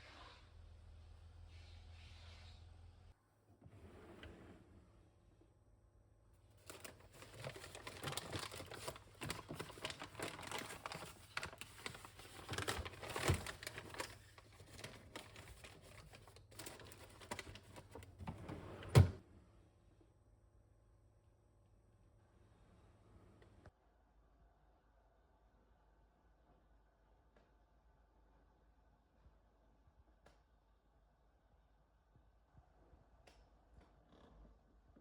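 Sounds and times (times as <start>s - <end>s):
packaging rustling: 6.6s - 18.2s.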